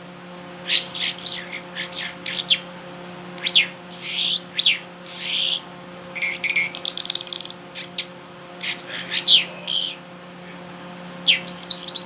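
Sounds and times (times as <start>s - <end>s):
steady low hum: 0.0s - 12.0s
songbird calling: 0.6s - 2.7s, 3.4s - 10.6s, 11.2s - 12.0s
high buzzy trill: 6.2s - 7.8s.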